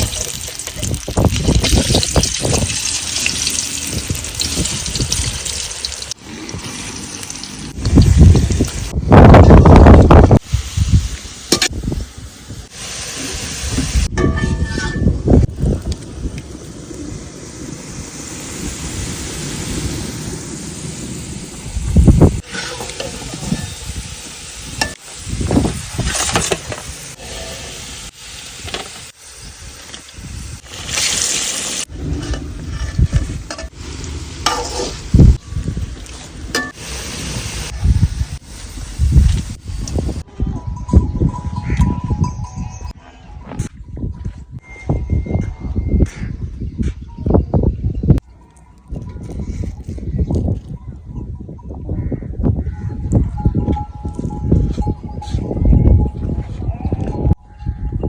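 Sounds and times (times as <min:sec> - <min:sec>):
chips sizzling in hot oil: 0:00.0 - 0:08.9, 0:22.4 - 0:31.9
water pouring and splashing: 0:00.0 - 0:12.0, 0:15.3 - 0:40.2.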